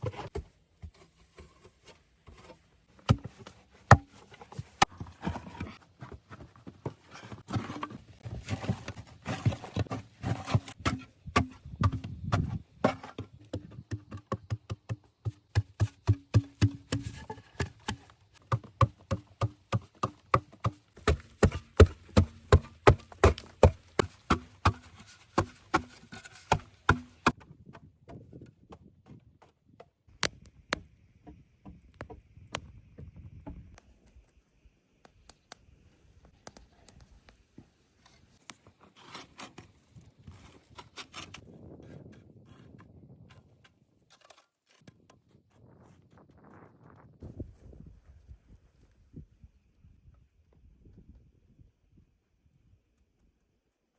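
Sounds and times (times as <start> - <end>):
hand tool chopping wood: 7.5 - 28.2.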